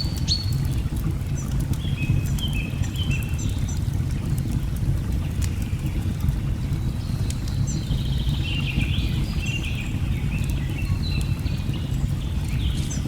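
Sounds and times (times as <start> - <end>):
log fire crackling: 0.0 - 13.0.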